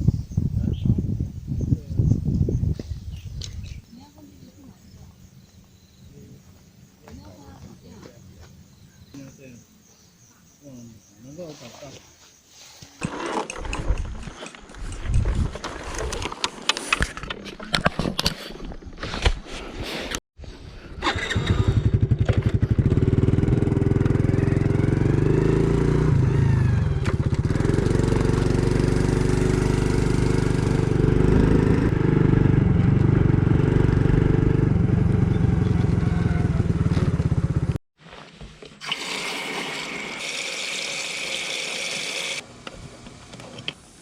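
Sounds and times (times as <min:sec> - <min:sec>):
engine running: 0:21.0 - 0:37.8.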